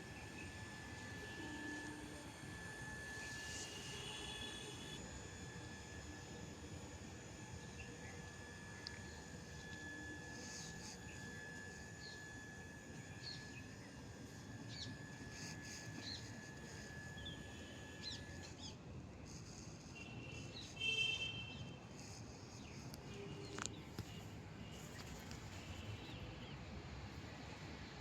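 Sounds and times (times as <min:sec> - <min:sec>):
faint steady high tone: 0:00.0 - 0:26.4.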